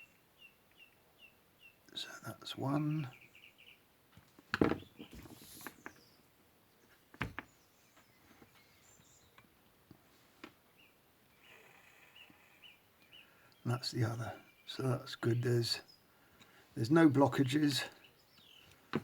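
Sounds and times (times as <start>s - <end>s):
handling knocks and clicks: 4.2s - 6.0s, 7.1s - 7.5s, 18.8s - 19.0s.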